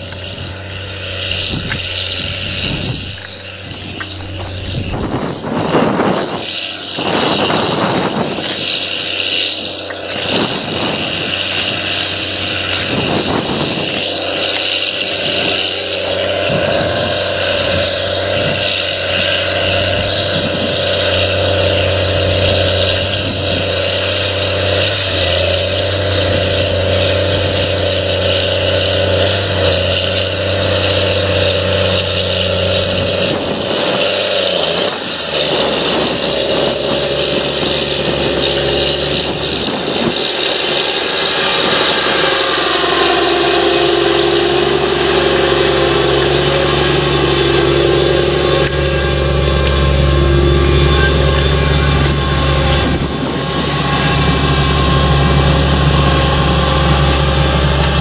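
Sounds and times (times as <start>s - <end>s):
engine-like drone of held tones: 0.0s - 58.0s.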